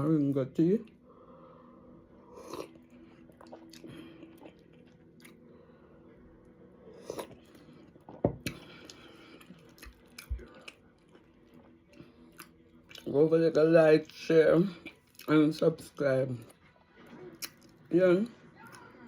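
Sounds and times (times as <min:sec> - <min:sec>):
person chewing food: 0:02.2 - 0:05.6, 0:06.9 - 0:13.1, 0:14.8 - 0:15.4, 0:17.3 - 0:17.9.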